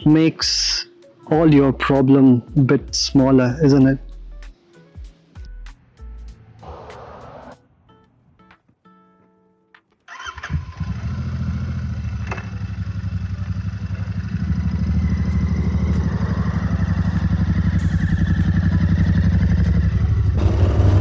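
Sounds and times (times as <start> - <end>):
motorcycle engine idling: 10.2 - 21.0.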